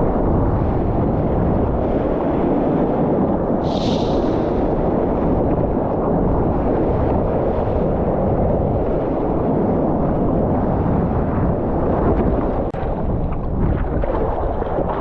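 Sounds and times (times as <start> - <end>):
wind buffeting microphone: 0.0 - 15.0
breaking lake surf: 1.5 - 7.5.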